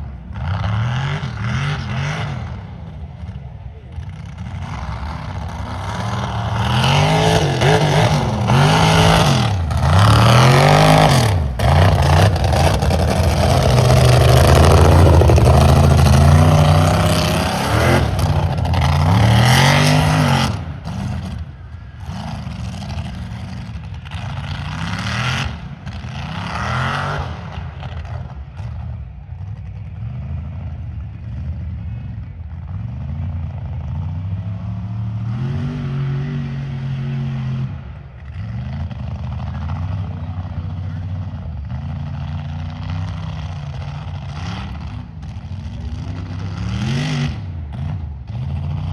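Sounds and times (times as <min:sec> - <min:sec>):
truck engine revving: 0:04.1 - 0:30.6.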